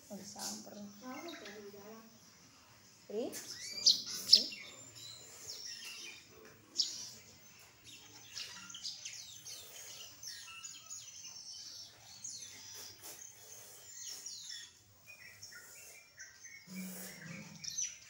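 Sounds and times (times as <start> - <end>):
small bird chirping: 0.0 - 18.0.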